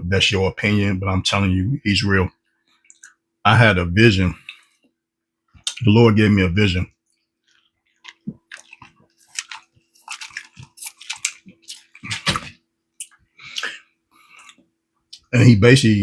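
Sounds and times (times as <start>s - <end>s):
person chewing food: 2.7s - 3.2s, 7.1s - 15.2s.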